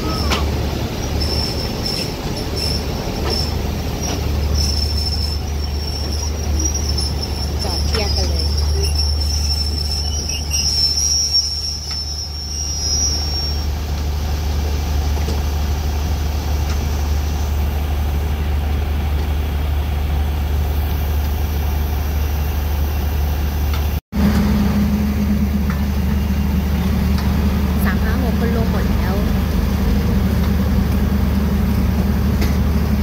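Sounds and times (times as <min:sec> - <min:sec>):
high wheel squeal: 0:00.0 - 0:13.9
diesel train engine rumble: 0:00.0 - 0:33.0
train track noise: 0:00.0 - 0:33.0.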